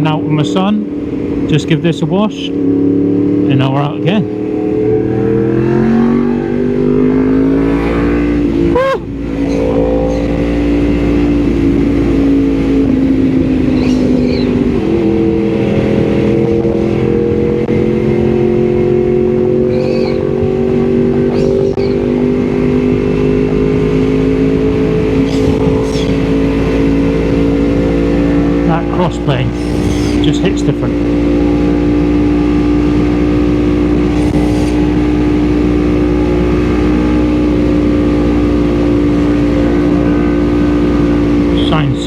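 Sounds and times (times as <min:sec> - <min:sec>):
motorcycle engine accelerating: 0:00.0 - 0:42.0
wind and road rumble: 0:00.0 - 0:42.0.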